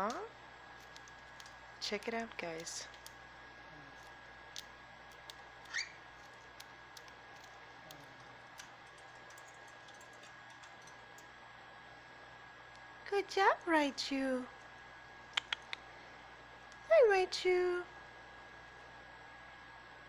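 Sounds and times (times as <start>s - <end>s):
cockatiel pecking clicks: 0.8s - 3.2s, 4.0s - 11.3s, 15.3s - 15.9s
cockatiel chirp: 5.6s - 6.0s.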